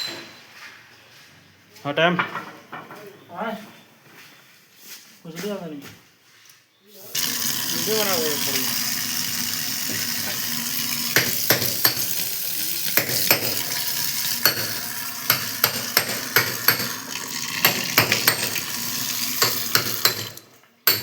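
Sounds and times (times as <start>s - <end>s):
water running from tap: 7.0s - 20.4s.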